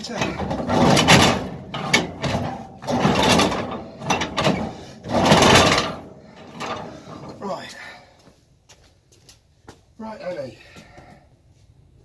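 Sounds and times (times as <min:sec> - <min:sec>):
engine cranking by hand: 0:00.0 - 0:07.9.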